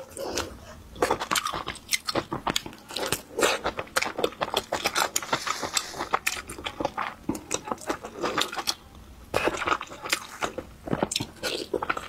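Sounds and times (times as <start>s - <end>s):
biting and chewing food: 0.0s - 12.0s
food crunching: 0.0s - 12.0s.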